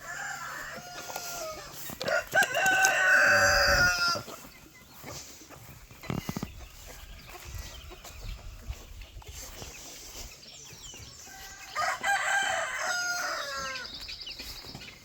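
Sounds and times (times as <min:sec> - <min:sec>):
rooster crowing: 0:00.0 - 0:04.3, 0:11.3 - 0:13.9.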